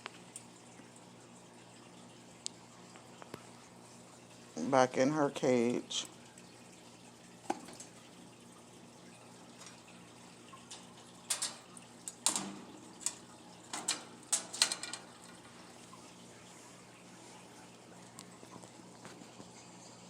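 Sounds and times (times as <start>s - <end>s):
faint steady hum: 0.0s - 20.0s
food bowl clicking into wire cage: 10.6s - 15.5s.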